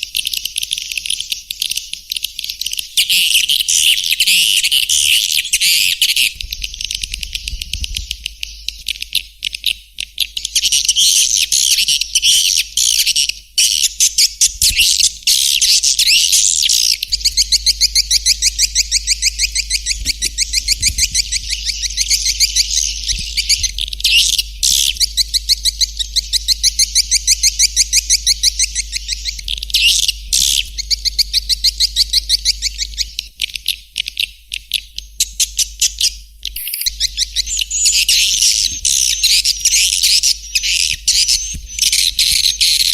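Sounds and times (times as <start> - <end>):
swiftlet chattering chirps: 14.2 - 33.2.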